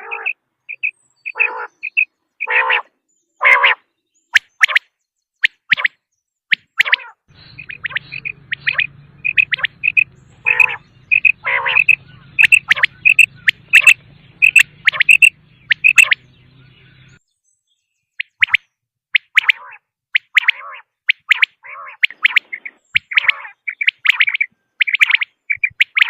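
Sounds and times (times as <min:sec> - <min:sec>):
quail calling: 0:00.0 - 0:17.2, 0:19.2 - 0:26.0
faint low hum: 0:07.3 - 0:17.2.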